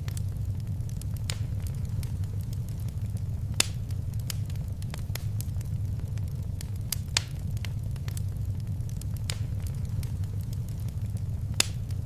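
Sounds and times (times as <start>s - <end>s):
wood fire crackling: 0.0s - 12.0s
sharp pop of fire: 3.6s - 4.5s, 11.6s - 11.9s.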